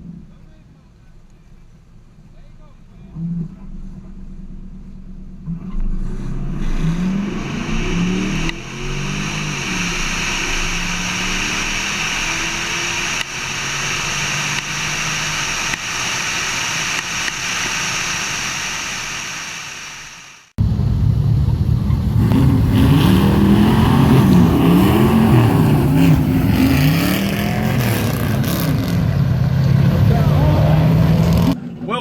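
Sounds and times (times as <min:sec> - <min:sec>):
car engine accelerating: 0:02.9 - 0:19.2, 0:20.6 - 0:31.9.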